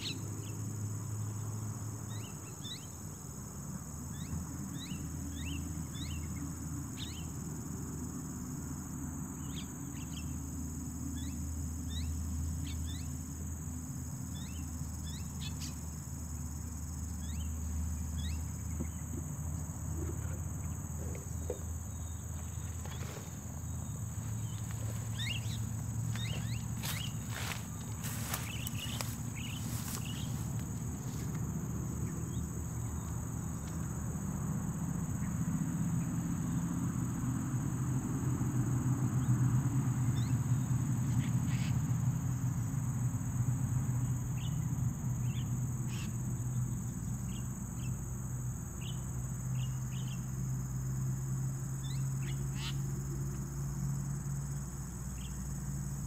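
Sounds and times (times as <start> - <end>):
bird chirps: 21.4 - 30.5.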